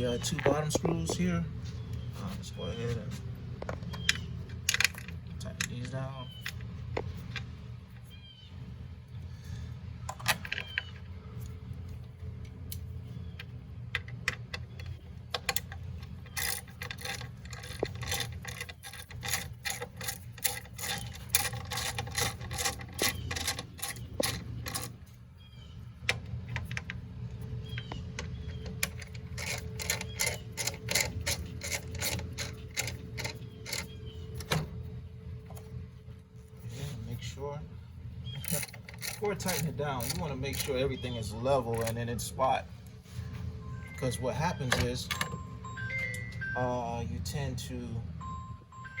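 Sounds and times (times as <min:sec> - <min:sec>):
ratchet driver clicking: 0:38.3 - 0:41.1.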